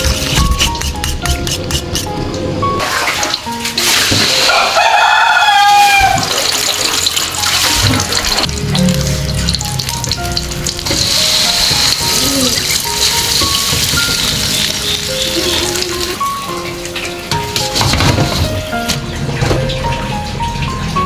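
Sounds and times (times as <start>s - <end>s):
background music: 0.0s - 21.0s
tap water running into sink: 5.8s - 21.0s.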